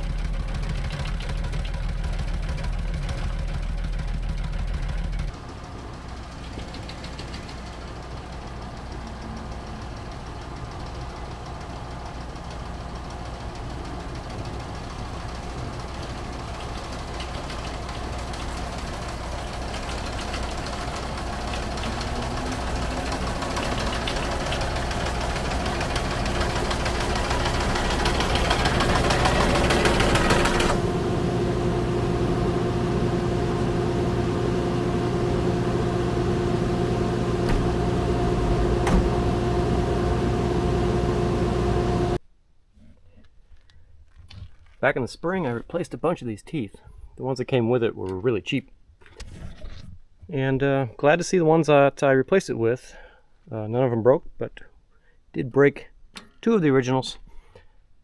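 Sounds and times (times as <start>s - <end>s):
engine running: 0.0s - 42.2s.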